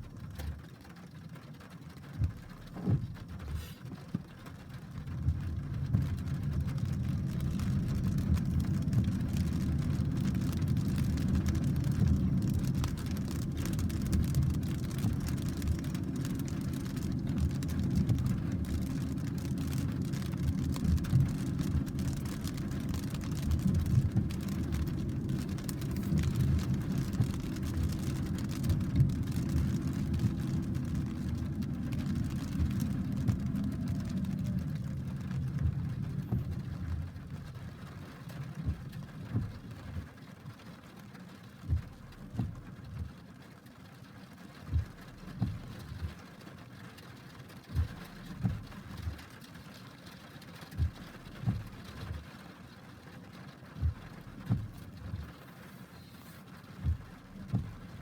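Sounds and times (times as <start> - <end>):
rain hiss: 1.2 - 58.0
thunder rumble: 4.8 - 40.2.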